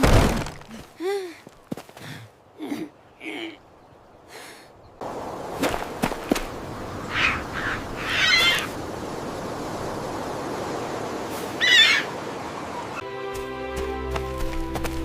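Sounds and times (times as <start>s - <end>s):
outdoor ambience hiss: 0.0s - 15.0s
wavering bird calls: 6.9s - 8.8s, 11.4s - 13.0s
music: 13.0s - 15.0s.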